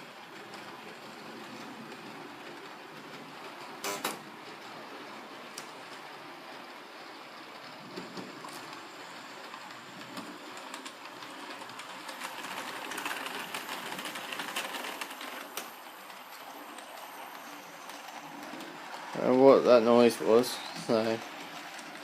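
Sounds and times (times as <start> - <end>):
model train motor whirring: 5.2 - 22.0.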